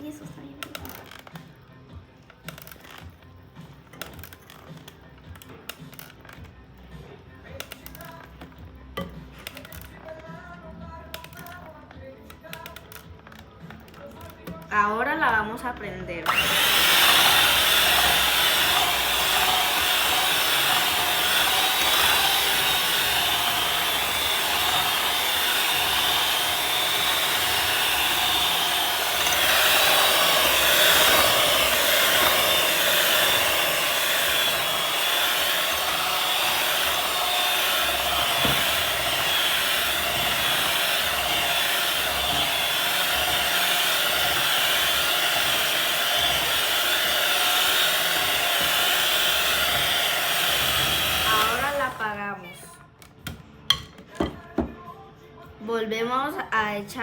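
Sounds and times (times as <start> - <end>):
electric hand mixer whirring: 16.2 - 52.5.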